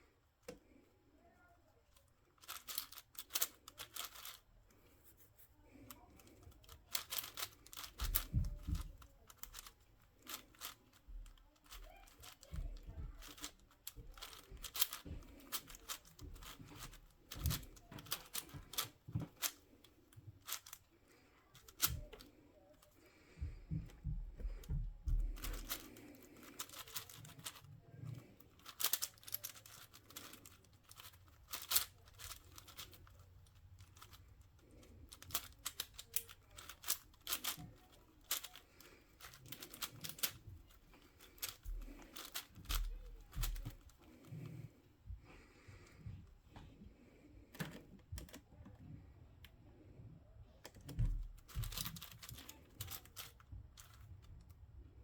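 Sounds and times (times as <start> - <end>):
dull knocks handling cube: 2.4 - 4.4, 6.3 - 19.7, 23.4 - 27.6, 28.5 - 33.2, 33.8 - 44.2, 50.8 - 54.0
puzzle cube clacking: 2.4 - 4.9, 5.8 - 44.6, 50.7 - 54.1.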